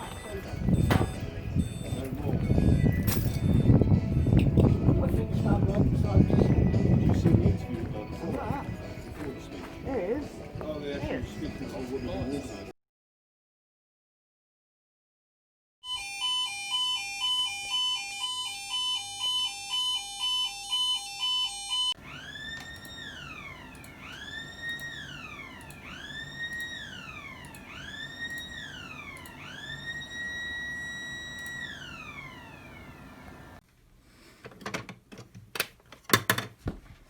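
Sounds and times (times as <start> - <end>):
electronic alarm sounder: 0.0 - 4.5, 15.8 - 33.6.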